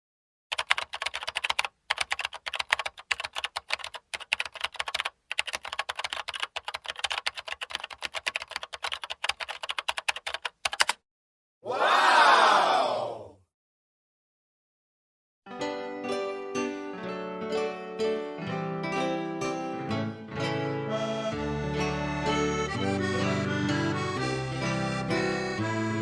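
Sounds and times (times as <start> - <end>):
rapid keyboard typing: 0.5 - 11.0.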